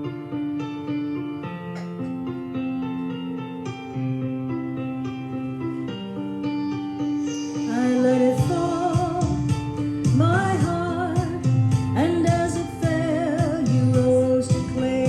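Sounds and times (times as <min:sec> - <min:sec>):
piano chords: 0:00.0 - 0:15.0
person singing with vibrato: 0:07.6 - 0:15.0.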